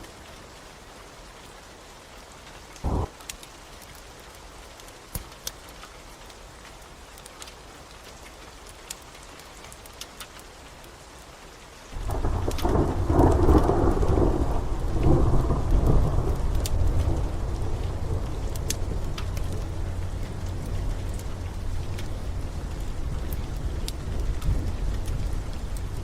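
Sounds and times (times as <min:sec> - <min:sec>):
steady rain: 0:00.0 - 0:26.0
wood fire crackling: 0:02.7 - 0:11.0, 0:11.8 - 0:26.0
thunder rumbling: 0:02.8 - 0:03.1, 0:12.0 - 0:26.0.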